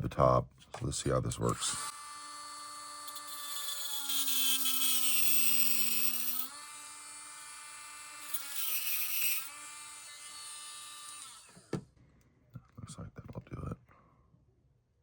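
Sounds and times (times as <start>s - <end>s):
rotary tool whining: 1.5s - 11.8s.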